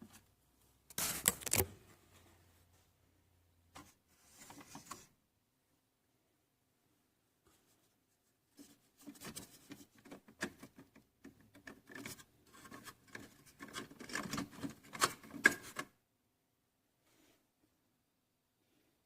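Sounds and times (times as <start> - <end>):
rubbing and scraping with clicks: 0.9 - 1.8, 8.5 - 16.0.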